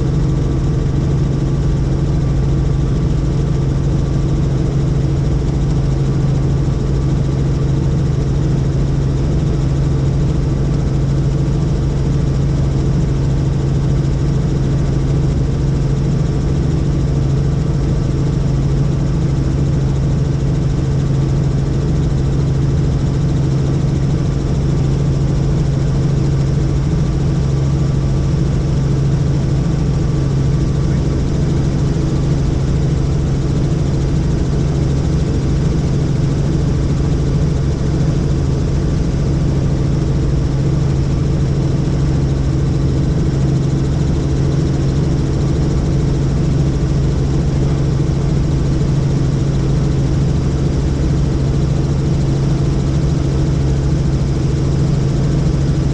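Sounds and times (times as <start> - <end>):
helicopter drone: 0.0 - 55.9.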